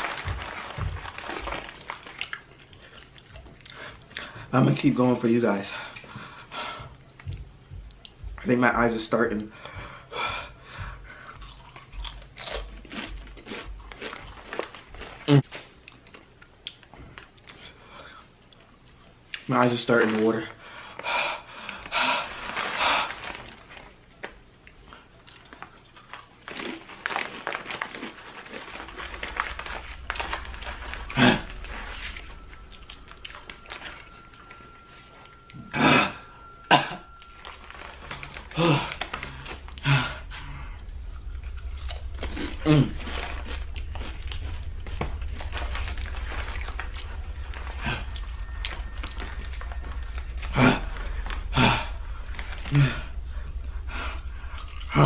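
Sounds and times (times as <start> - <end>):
chips crunching and crinkling: 0.0 - 4.8, 11.2 - 17.7, 22.4 - 34.6, 37.1 - 51.8
steady low hum: 0.0 - 55.0
person breathing: 5.7 - 7.4, 9.4 - 11.6, 47.0 - 55.0
person breathing hard through mouth: 9.5 - 11.4.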